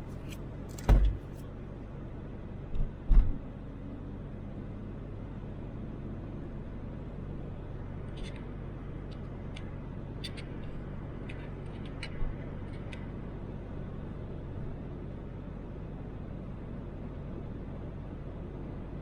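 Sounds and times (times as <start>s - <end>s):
car engine and road rumble: 0.0s - 19.0s
brief thump: 0.7s - 1.4s.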